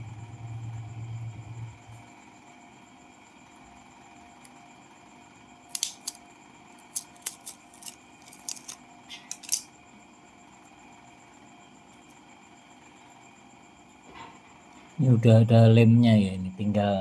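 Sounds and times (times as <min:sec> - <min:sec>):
scissors snipping: 0:05.7 - 0:06.2, 0:06.8 - 0:09.7.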